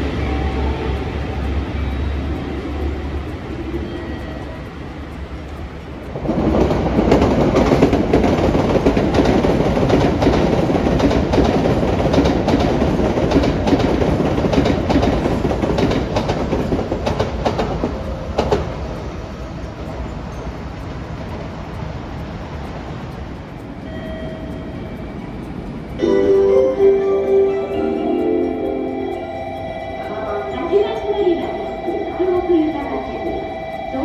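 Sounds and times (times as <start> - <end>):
train rumbling past: 0.0 - 34.0
wheels clicking over rail joints: 0.0 - 34.0.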